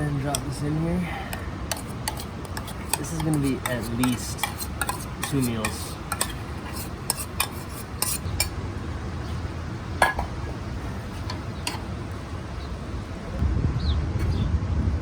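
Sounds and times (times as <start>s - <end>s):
utensil scraping cooking pot: 0.0s - 13.0s.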